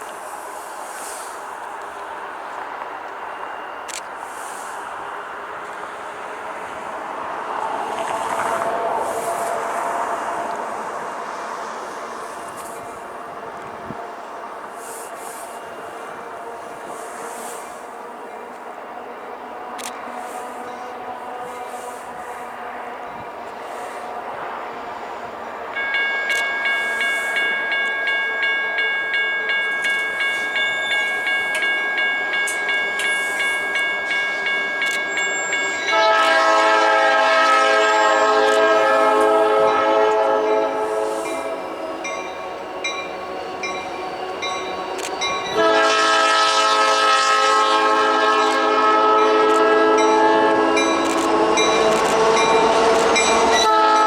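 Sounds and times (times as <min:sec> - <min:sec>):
railroad crossing bell ringing: 0:00.0 - 0:06.9, 0:11.5 - 0:54.0
locomotive air horn blasts: 0:14.8 - 0:24.8, 0:33.2 - 0:42.1, 0:45.4 - 0:54.0.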